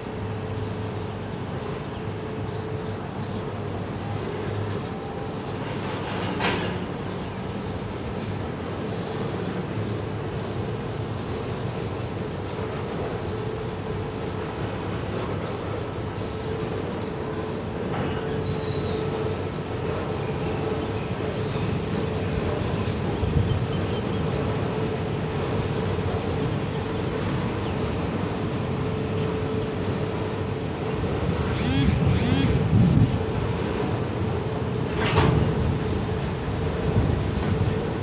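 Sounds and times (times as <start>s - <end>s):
freight train wheels rattling on rails: 4.2s - 29.4s
steady tone: 31.3s - 33.2s.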